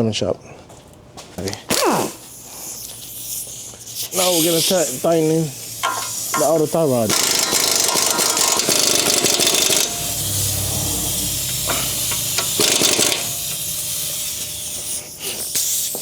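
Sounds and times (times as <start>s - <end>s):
pneumatic tool rattling: 1.7s - 16.0s.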